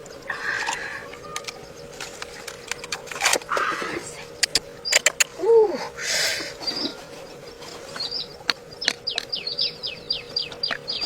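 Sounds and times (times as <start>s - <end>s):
sharp clicks: 0.0s - 3.8s, 4.4s - 5.3s
bird chirping: 0.0s - 11.0s.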